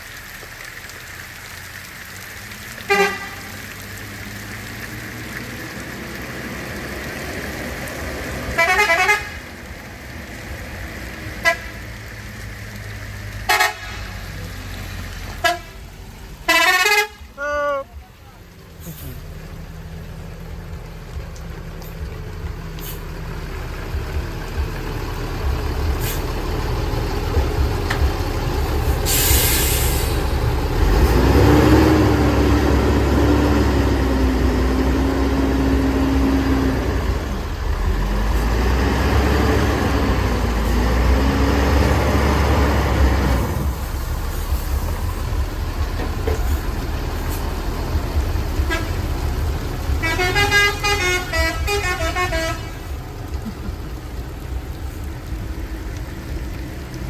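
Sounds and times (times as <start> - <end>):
diesel engines labouring: 0.0 - 57.0
air brake hiss: 29.0 - 30.3.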